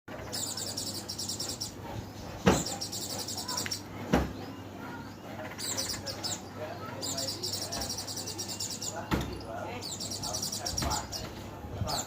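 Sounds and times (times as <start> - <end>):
bird chirping trills: 0.1 - 11.3.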